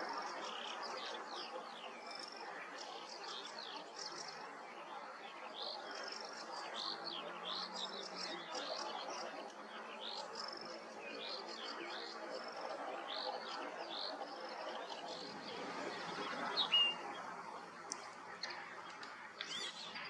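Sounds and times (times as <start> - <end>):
linnet twittering: 19.0 - 20.0.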